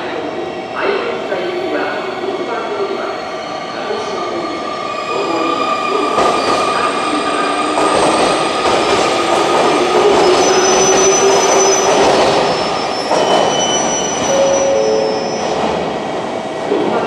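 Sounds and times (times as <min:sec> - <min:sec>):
train running and braking: 0:00.0 - 0:17.0
wheel and brake squeals: 0:10.0 - 0:15.6.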